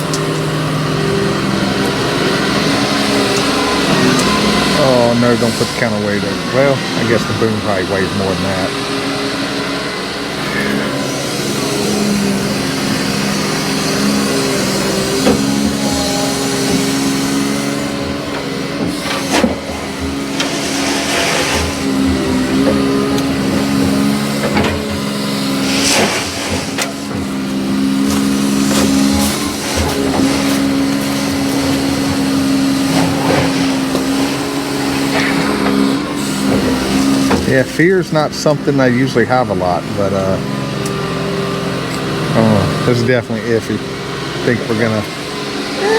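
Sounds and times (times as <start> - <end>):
heavy machine engine running: 0.0 - 45.9.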